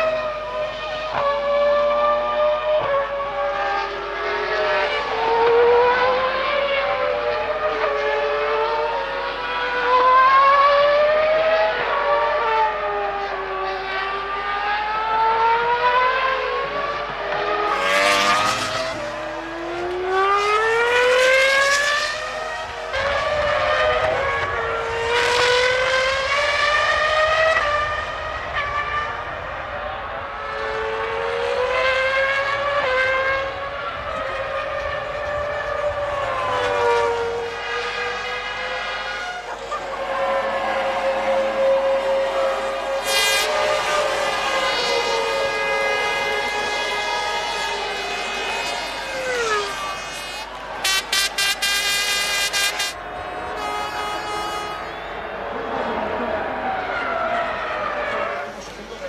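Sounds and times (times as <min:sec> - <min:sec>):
racing car engines screaming: 0:00.0 - 0:59.0.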